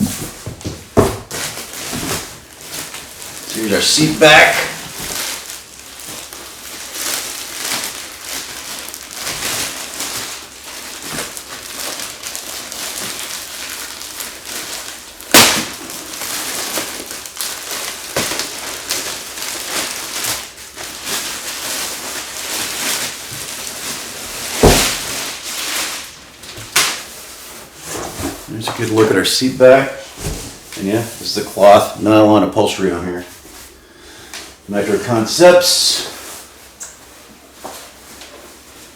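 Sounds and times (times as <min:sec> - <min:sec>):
packaging crinkling and rustling: 0:00.0 - 0:32.0.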